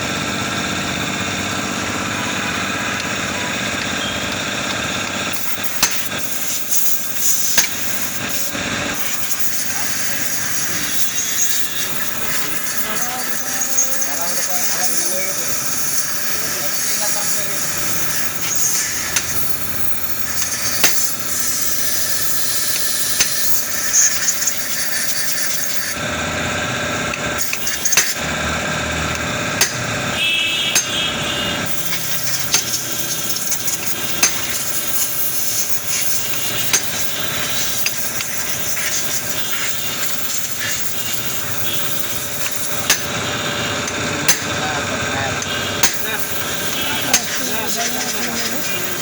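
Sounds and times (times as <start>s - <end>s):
steady background noise: 0.0s - 49.0s
metallic taps of hand tools: 5.8s - 6.5s, 27.1s - 28.2s, 30.7s - 31.0s, 32.5s - 32.8s, 42.4s - 43.2s, 45.4s - 46.1s.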